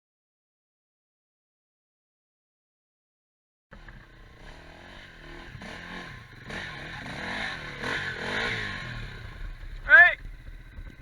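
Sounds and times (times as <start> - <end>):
quad bike engines revving: 3.7 - 11.0.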